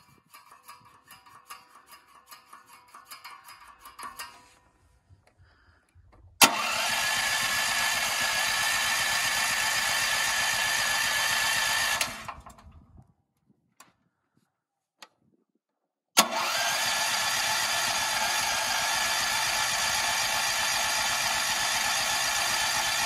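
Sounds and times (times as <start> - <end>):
generator engine running: 6.4 - 12.9, 16.2 - 23.0.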